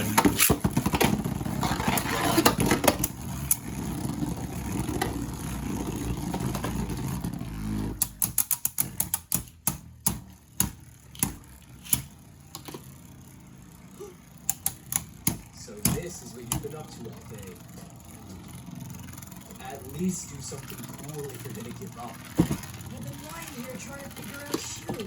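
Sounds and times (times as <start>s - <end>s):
spinning top whirring: 0.0s - 25.0s
sharp clicks: 8.0s - 12.1s, 14.5s - 16.7s.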